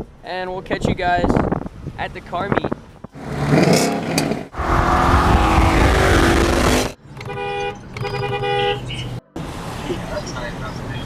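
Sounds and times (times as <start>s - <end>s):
loud car engine and exhaust: 3.1s - 11.0s
car horn held tone: 7.2s - 9.2s.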